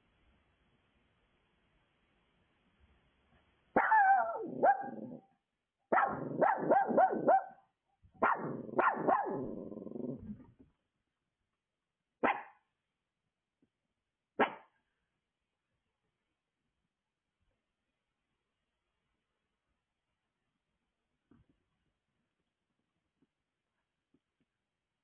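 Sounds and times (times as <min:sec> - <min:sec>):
dog barking: 0:03.8 - 0:05.2, 0:05.9 - 0:10.2, 0:12.2 - 0:12.6.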